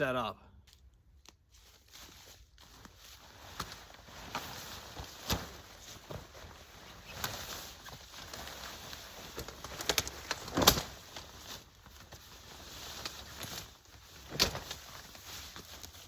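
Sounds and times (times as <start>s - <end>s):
fabric rustling: 1.5s - 16.0s.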